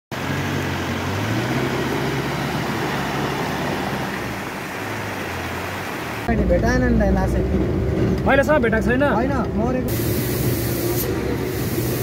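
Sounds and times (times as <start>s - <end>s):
road noise hiss: 0.1s - 6.3s, 9.8s - 12.0s.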